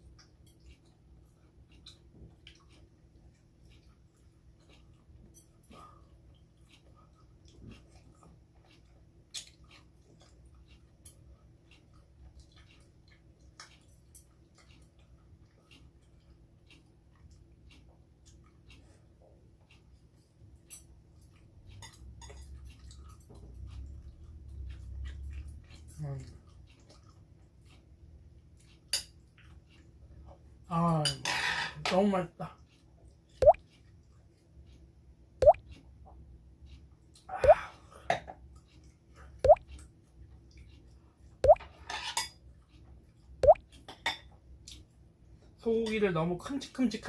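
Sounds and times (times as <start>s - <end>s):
chewing food: 0.0s - 30.7s, 32.5s - 45.6s
drops plopping into liquid: 41.4s - 41.7s.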